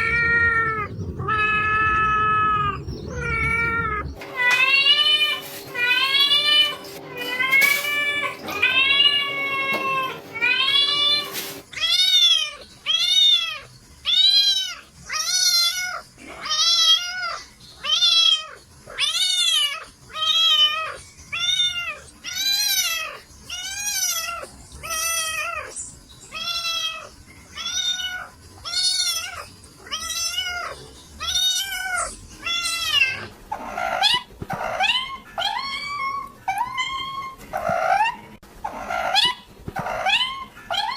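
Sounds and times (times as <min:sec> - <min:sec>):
cats meowing: 0:00.0 - 0:40.9
steady hum: 0:00.8 - 0:11.7.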